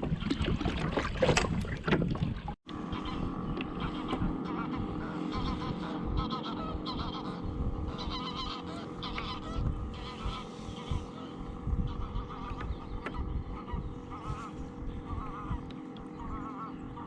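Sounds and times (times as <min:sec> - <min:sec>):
wind on microphone: 0:00.0 - 0:17.0
geese honking: 0:02.7 - 0:17.0.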